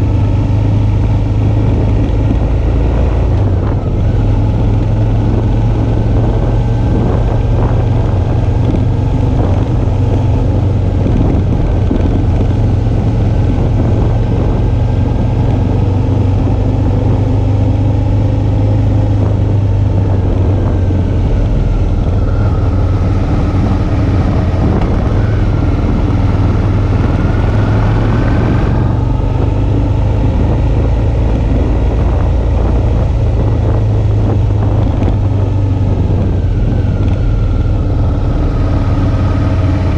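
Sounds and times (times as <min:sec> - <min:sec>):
motorcycle engine running: 0:00.0 - 0:39.9
road noise: 0:00.0 - 0:39.9
wind noise: 0:00.0 - 0:39.9.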